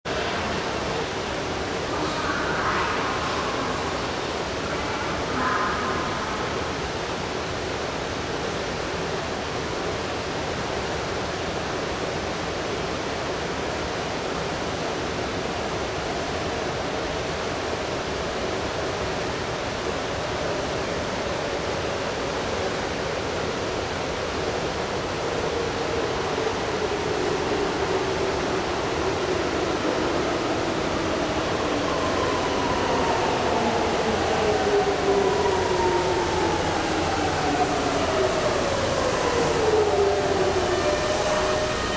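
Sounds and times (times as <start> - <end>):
train rushing through tunnel: 0.0 - 41.9
faint train hum: 0.1 - 41.9.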